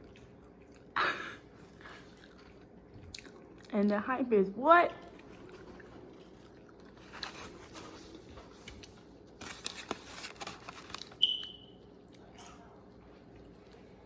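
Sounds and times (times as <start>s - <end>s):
eating rustling and crunching: 5.0s - 11.2s.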